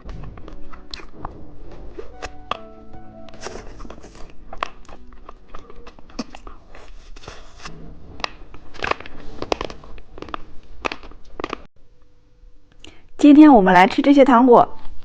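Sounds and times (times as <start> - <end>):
candy wrapper crackling: 2.1 - 11.7.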